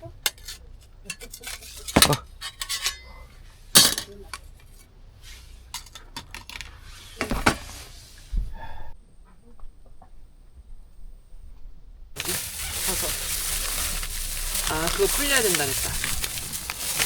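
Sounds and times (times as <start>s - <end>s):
metal utensils and dishes clinking: 0.2s - 4.9s, 5.7s - 6.7s, 12.2s - 17.0s.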